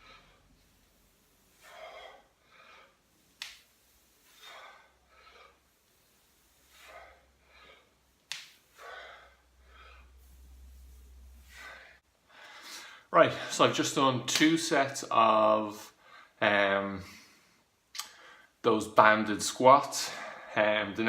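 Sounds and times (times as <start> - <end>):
man breathing rhythmically: 0.0 - 13.6, 15.8 - 16.4, 17.0 - 18.6, 20.0 - 20.6.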